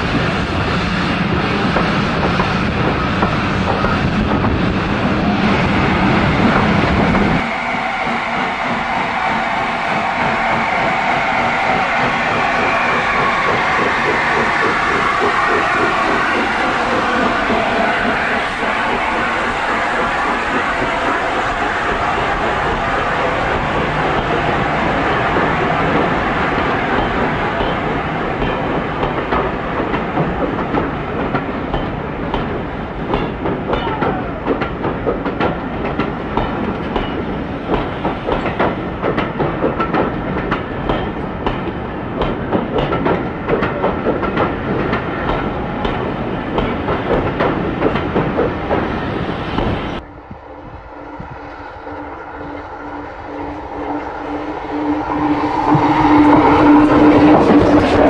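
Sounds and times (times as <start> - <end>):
train wheels clattering over joints: 8.4 - 50.0.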